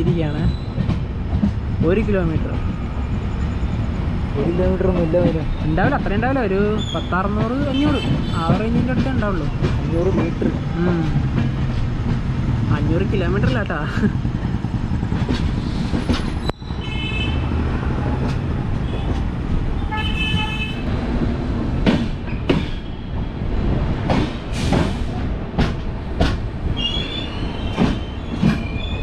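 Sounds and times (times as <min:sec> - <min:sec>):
train rumbling: 0:00.0 - 0:29.0
wheels clacking over rail joints: 0:21.2 - 0:29.0.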